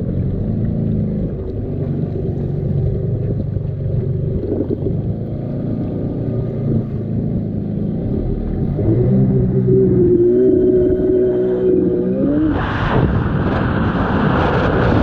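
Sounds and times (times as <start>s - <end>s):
jet ski engine running: 0.0s - 12.6s.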